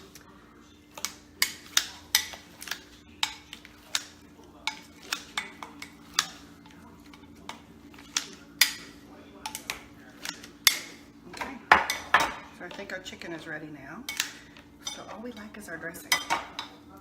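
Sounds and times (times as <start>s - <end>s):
salad choppers clicking in bowl: 7.0s - 12.1s.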